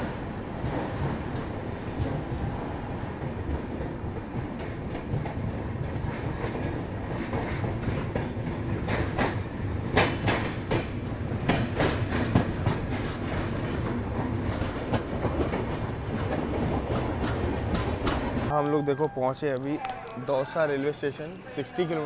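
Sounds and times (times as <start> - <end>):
train rumbling on track: 0.0 - 18.5
wheels clacking over rail joints: 3.5 - 18.5.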